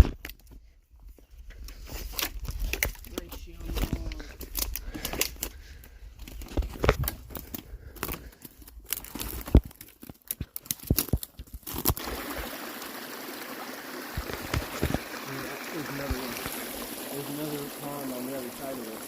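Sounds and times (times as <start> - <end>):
footsteps on twigs and dry leaves: 6.2 - 12.0
trickling running water: 11.8 - 19.0.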